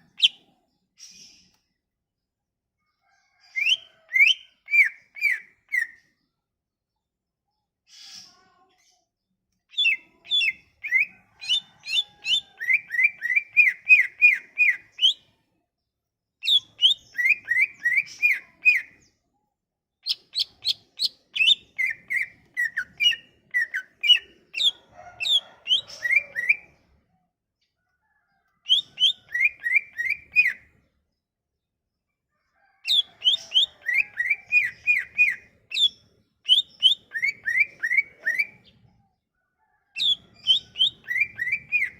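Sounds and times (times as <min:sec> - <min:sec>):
bird whistling song: 0:00.1 - 0:01.5, 0:03.4 - 0:06.0, 0:09.7 - 0:15.3, 0:16.4 - 0:19.0, 0:20.0 - 0:26.7, 0:28.7 - 0:30.7, 0:32.9 - 0:38.9, 0:40.0 - 0:41.9.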